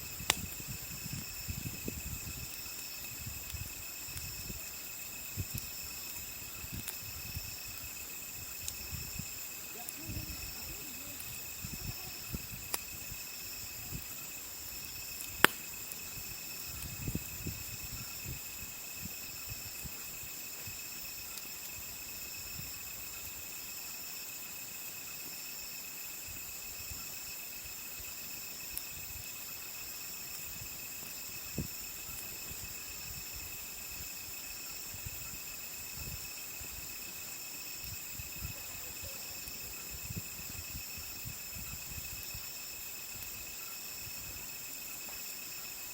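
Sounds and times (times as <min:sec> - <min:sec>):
campfire crackling: 0:00.0 - 0:45.9
insects chirping: 0:00.0 - 0:45.9.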